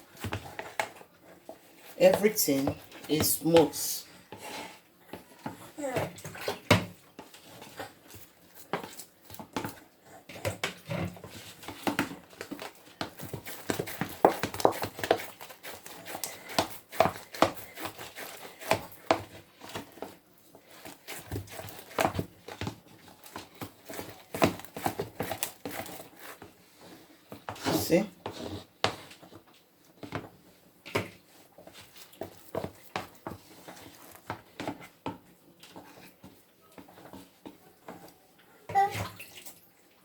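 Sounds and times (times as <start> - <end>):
utensil knocking and slapping dough: 8.1 - 26.6, 27.3 - 38.0.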